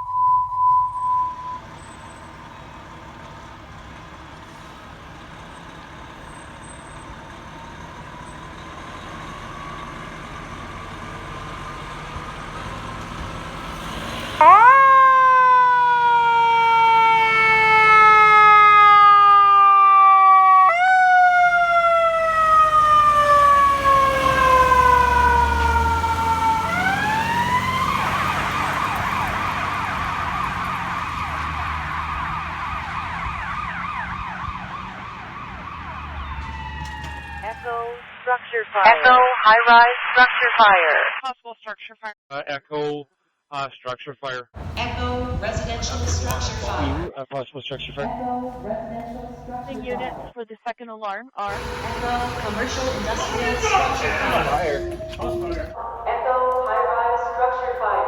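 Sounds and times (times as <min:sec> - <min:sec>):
fire engine siren: 0:00.9 - 0:38.0, 0:44.6 - 0:47.1, 0:49.1 - 0:50.3, 0:51.5 - 0:58.0.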